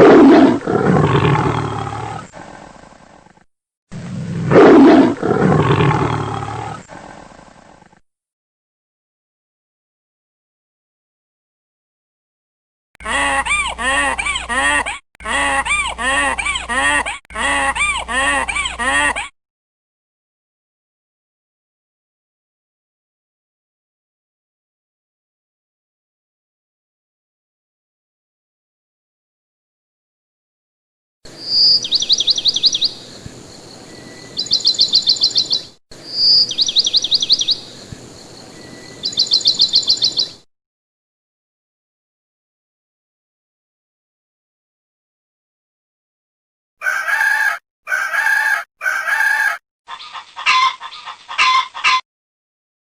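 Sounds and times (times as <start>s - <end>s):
bird calling: 31.3s - 40.4s, 46.8s - 52.0s
songbird singing: 31.3s - 40.5s.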